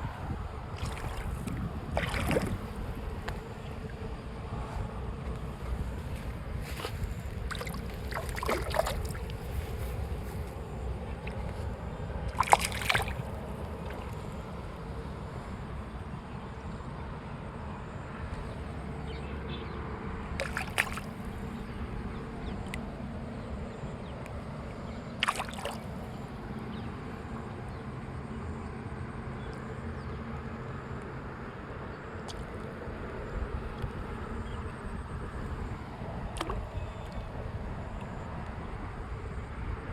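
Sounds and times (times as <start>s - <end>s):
steady low rumble: 0.0s - 25.2s
fish splashing in water: 0.7s - 3.6s, 6.7s - 10.1s, 12.2s - 14.5s, 20.3s - 21.6s, 25.1s - 26.1s, 36.2s - 37.2s.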